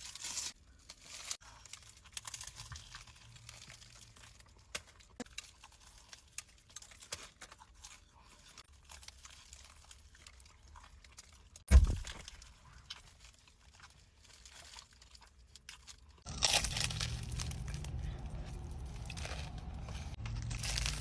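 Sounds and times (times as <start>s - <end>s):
chewing and crunching food: 0.0s - 21.0s
loud deep thump: 11.7s - 12.2s.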